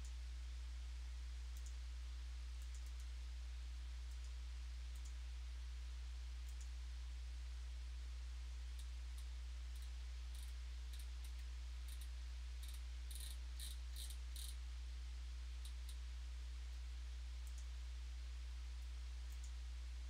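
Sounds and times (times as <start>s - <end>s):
steady low hum: 0.0s - 20.0s
small sharp clicks: 1.6s - 1.8s, 2.6s - 3.1s, 4.1s - 5.2s, 6.5s - 6.7s, 8.8s - 14.6s, 17.4s - 17.7s, 18.8s - 19.6s.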